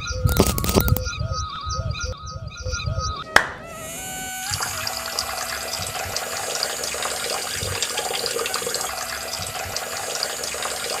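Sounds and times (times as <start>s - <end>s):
water spraying and splashing on plastic: 3.8s - 11.0s.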